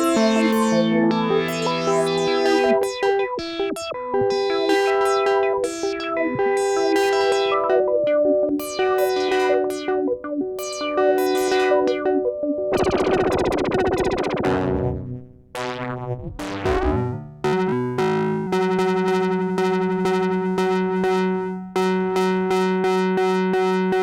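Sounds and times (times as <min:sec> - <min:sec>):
analog synthesizer chords: 0:00.0 - 0:24.0.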